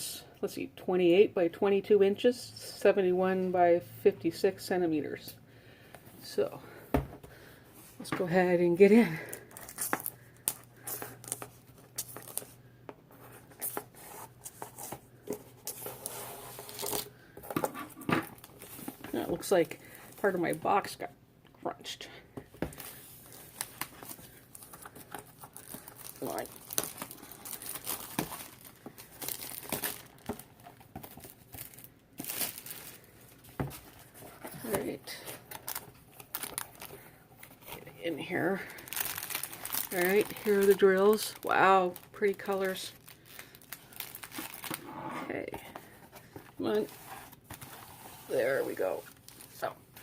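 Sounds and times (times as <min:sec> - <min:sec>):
cardboard packaging being handled: 0:09.3 - 0:20.7, 0:22.6 - 0:50.0.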